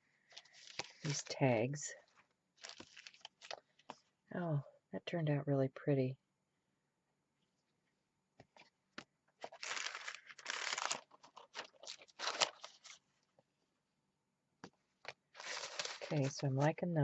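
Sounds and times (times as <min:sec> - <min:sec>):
paper rustling and crinkling: 0:00.3 - 0:01.4, 0:02.1 - 0:04.0, 0:09.4 - 0:13.1, 0:15.0 - 0:16.8.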